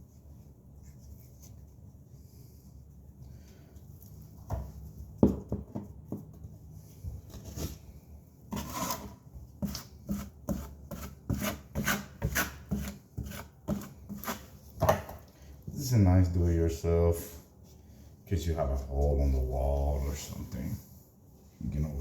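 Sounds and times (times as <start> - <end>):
putty knife scraping drywall: 8.5 - 14.6.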